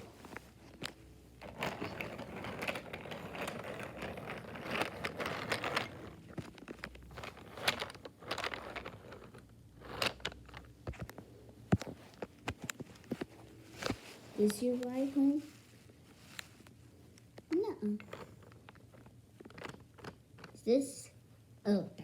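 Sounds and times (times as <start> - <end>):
toy train rattling on track: 1.4 - 6.3, 7.1 - 10.6
plastic toys clicking: 1.4 - 11.1, 17.4 - 20.6.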